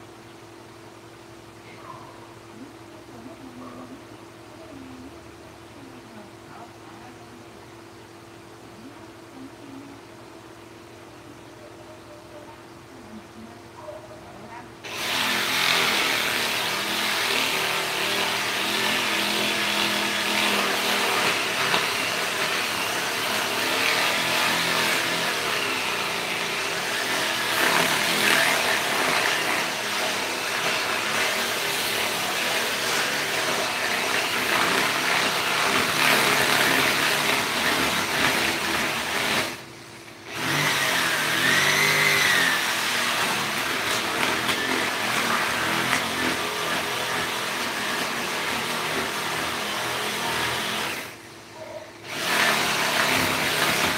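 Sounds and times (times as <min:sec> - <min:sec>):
motor running: 0:14.8 - 0:53.9.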